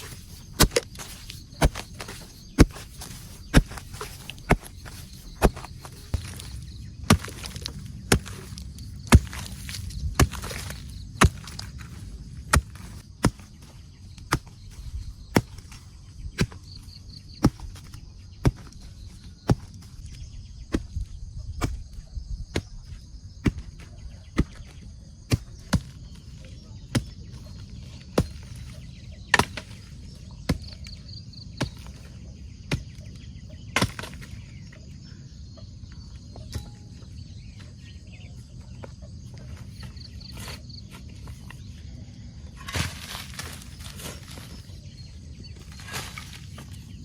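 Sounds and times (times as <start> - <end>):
rustling: 0.0 - 13.6
steady low rumble: 0.0 - 17.4
insects chirping: 0.0 - 47.0.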